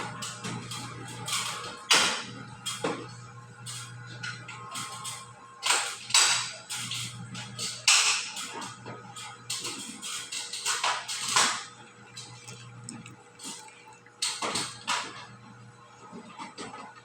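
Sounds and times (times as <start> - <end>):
steady low hum: 10.6 - 16.1.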